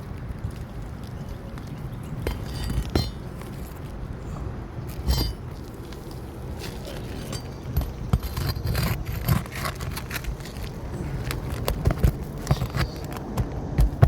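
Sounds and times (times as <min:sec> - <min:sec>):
steady low rumble: 0:00.0 - 0:14.0
hand tools scraping and clicking: 0:02.1 - 0:03.9, 0:04.9 - 0:14.0.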